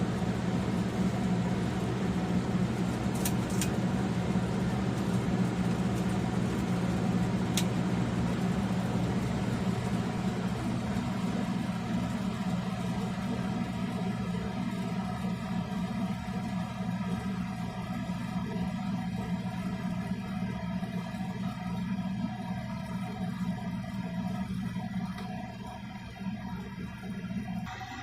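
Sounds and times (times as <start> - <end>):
ceiling fan motor hum: 0.0 - 28.0.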